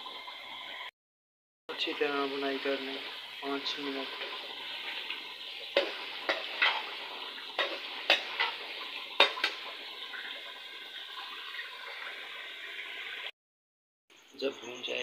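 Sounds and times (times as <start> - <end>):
food sizzling in a pot: 1.7 - 13.3.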